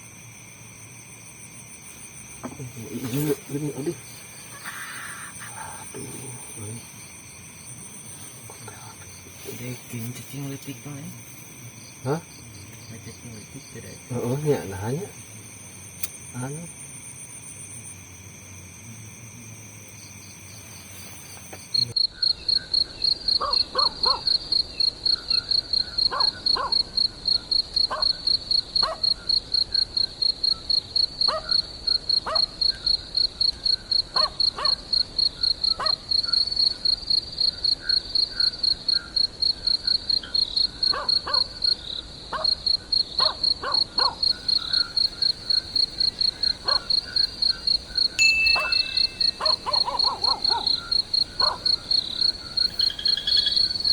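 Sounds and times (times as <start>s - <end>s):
cricket chirping trill: 0.0s - 53.9s
short lower calls: 3.0s - 6.8s, 48.2s - 53.9s.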